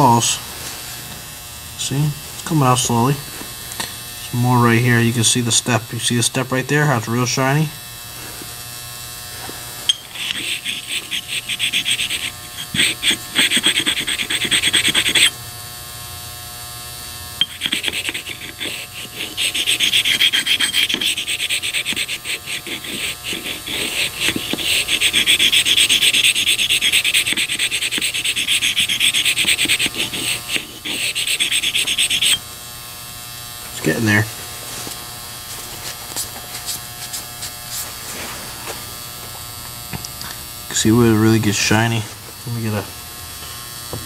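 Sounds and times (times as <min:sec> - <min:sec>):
metal scraping on sharpening stone: 0:09.9 - 0:15.4, 0:17.4 - 0:32.4.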